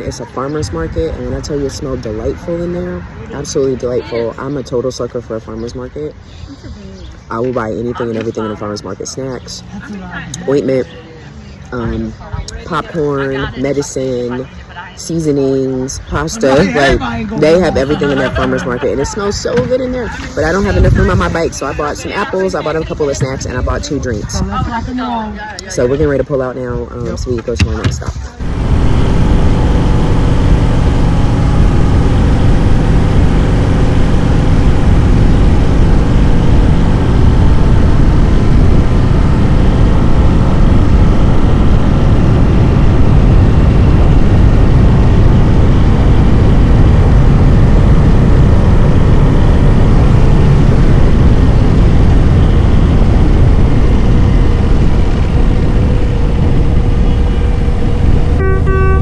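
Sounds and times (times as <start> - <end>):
road noise: 0.0 - 59.0
motorcycle engine running: 27.7 - 59.0.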